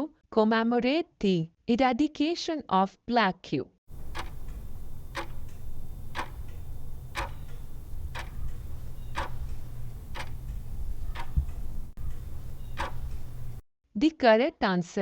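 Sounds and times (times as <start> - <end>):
clock ticking: 3.9 - 13.6
steady low hum: 3.9 - 13.6.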